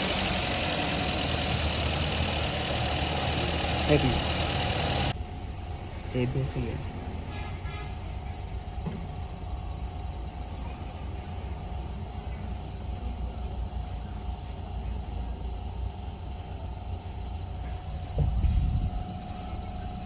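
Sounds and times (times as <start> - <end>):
car engine running: 0.0 - 5.2.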